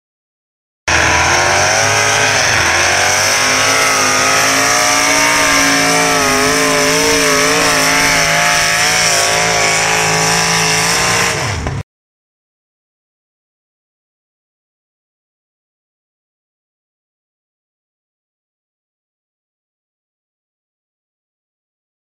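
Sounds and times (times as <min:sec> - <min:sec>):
high whine: 0:00.9 - 0:11.7
racing engine revving loudly: 0:00.9 - 0:11.8.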